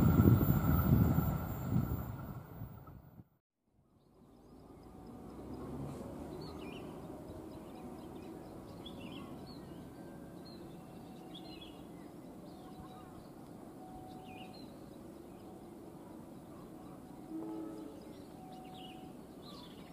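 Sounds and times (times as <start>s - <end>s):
steady low rumble: 0.0s - 3.2s
birds chirping: 4.0s - 19.9s.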